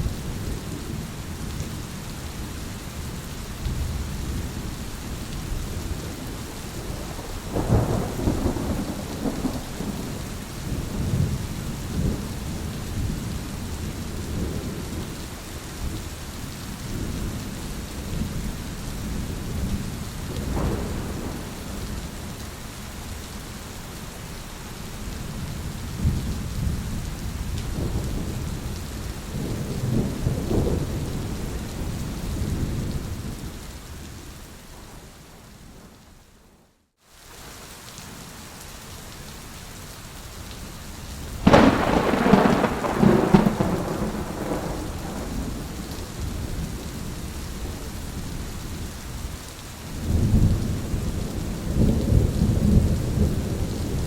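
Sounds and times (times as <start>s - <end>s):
steady rain: 0.0s - 54.0s
rolling thunder: 5.9s - 15.1s, 19.1s - 22.4s, 26.0s - 33.5s, 41.4s - 48.0s.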